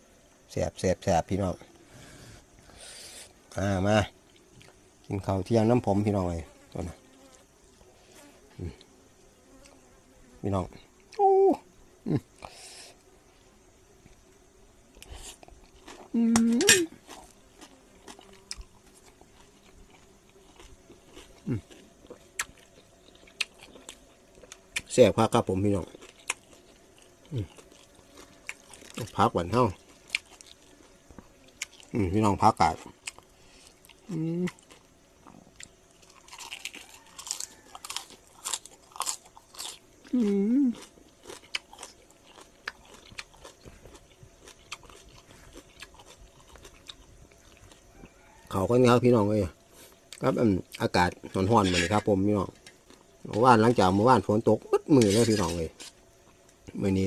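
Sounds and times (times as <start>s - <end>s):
person chewing food: 4.3s - 4.8s, 15.0s - 16.1s, 16.9s - 24.9s, 25.8s - 29.2s, 29.8s - 32.0s, 32.6s - 48.0s.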